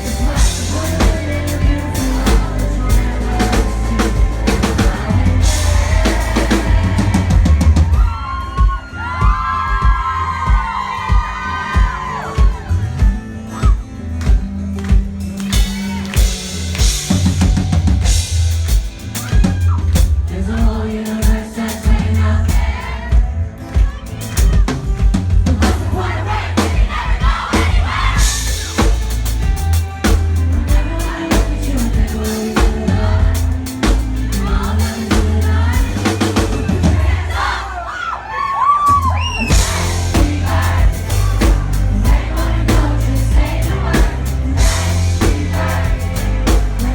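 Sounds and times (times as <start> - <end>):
person singing: 0.0 - 8.4, 30.5 - 37.0, 39.4 - 46.9
drum kit beat: 0.0 - 37.6, 38.9 - 46.9
live pop band playing: 0.0 - 37.9, 38.8 - 46.9.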